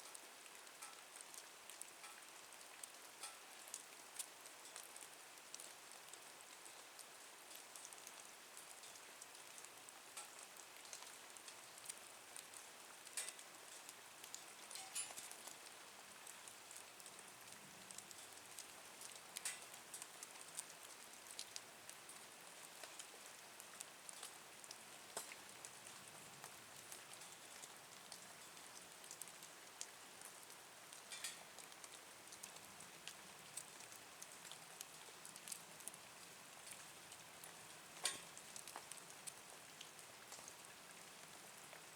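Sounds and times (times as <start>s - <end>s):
faint steady hiss: 0.0s - 41.9s
wood fire crackling and popping: 3.2s - 3.4s, 13.1s - 15.6s, 19.4s - 20.2s, 25.1s - 26.1s, 31.0s - 31.5s, 38.0s - 39.4s.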